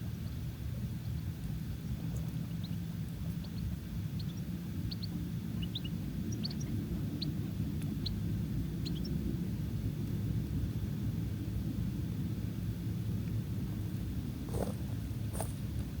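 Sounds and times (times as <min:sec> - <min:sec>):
steady low rumble: 0:00.0 - 0:16.0
small birds chirping: 0:00.1 - 0:09.3, 0:14.3 - 0:16.0.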